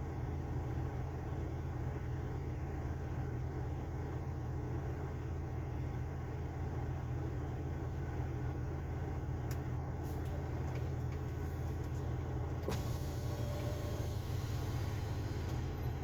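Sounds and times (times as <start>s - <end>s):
truck engine drone: 0.0s - 16.0s
road noise: 9.5s - 16.0s.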